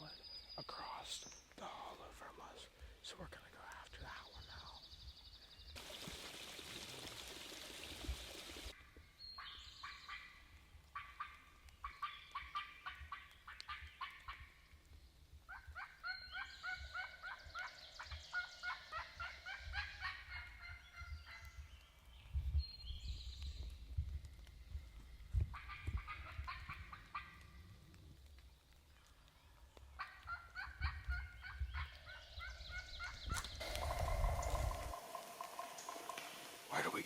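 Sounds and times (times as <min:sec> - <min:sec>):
wild turkey calling: 0:11.0 - 0:14.5, 0:15.5 - 0:21.6, 0:30.0 - 0:37.0.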